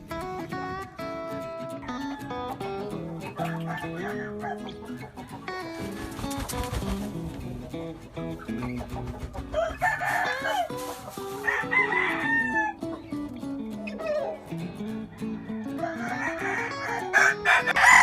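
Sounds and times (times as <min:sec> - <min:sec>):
guitar music: 0:00.0 - 0:18.0
roosters crowing: 0:01.7 - 0:02.7, 0:03.3 - 0:06.7, 0:08.4 - 0:12.8, 0:13.9 - 0:18.0.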